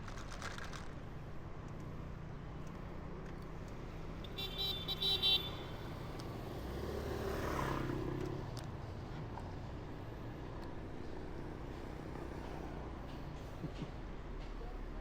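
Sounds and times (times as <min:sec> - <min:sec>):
road traffic rumbling: 0:00.0 - 0:15.0
vehicle horn tooting: 0:04.3 - 0:05.8
vehicle passing close by: 0:06.3 - 0:08.6.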